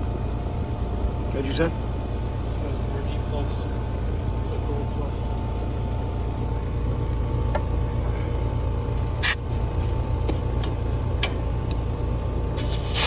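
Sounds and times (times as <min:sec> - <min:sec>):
air conditioner condenser humming: 0:00.0 - 0:13.0
refrigerant hissing: 0:09.0 - 0:09.4, 0:12.6 - 0:13.0.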